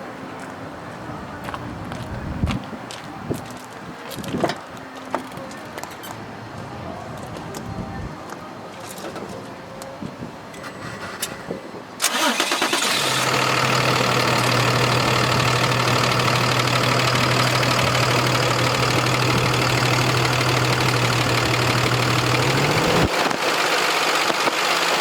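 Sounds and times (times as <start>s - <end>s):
engine starter cranking: 10.7s - 25.0s
diesel engine idling: 12.0s - 25.0s.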